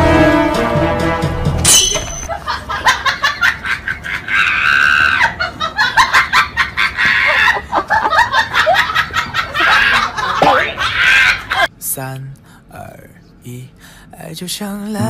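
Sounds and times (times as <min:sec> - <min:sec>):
person laughing hard: 0:02.3 - 0:11.7.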